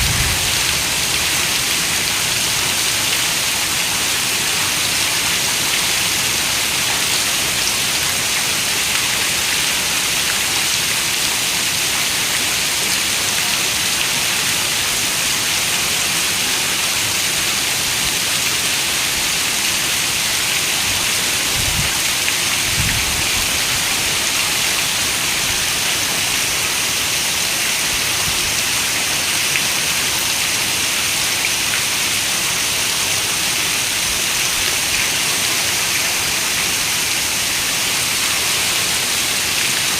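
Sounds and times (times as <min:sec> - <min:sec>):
low rumble: 0:00.0 - 0:02.5
steady rain: 0:00.0 - 0:39.9.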